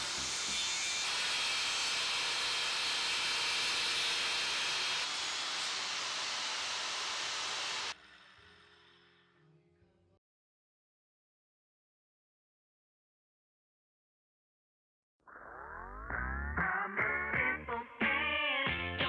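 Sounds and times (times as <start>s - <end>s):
circular saw running: 0.0s - 8.6s.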